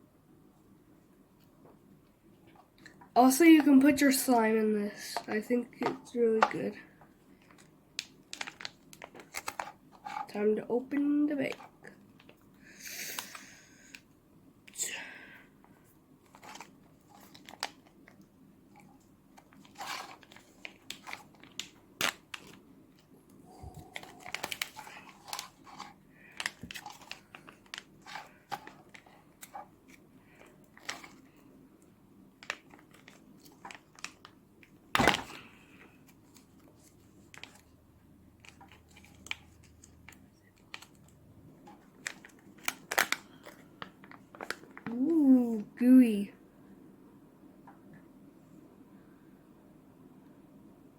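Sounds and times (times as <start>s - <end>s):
plastic packaging crinkling: 7.4s - 12.4s, 16.2s - 31.4s, 32.4s - 37.8s, 38.4s - 45.5s.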